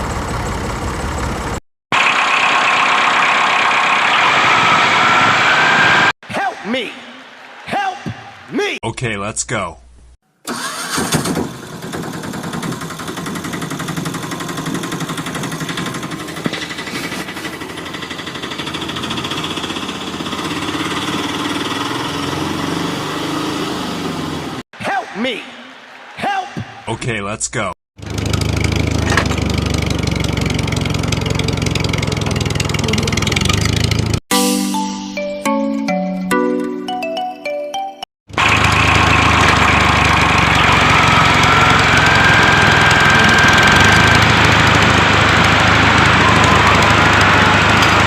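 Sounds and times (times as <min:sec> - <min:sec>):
small engine rattling: 0:10.5 - 0:22.4, 0:28.0 - 0:34.2, 0:38.3 - 0:48.0.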